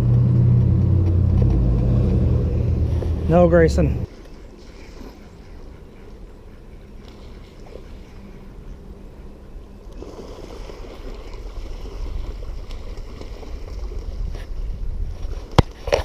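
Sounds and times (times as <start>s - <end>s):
low rumble: 0.0s - 4.1s
creek water splashing: 0.0s - 16.0s.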